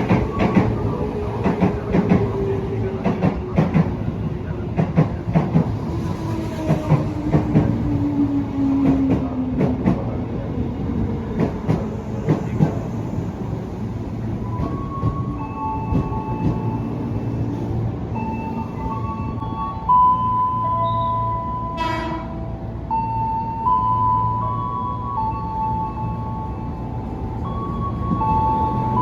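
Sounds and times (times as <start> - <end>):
train wheels clacking on rails: 0.0 - 10.4, 11.2 - 13.6, 14.3 - 17.4.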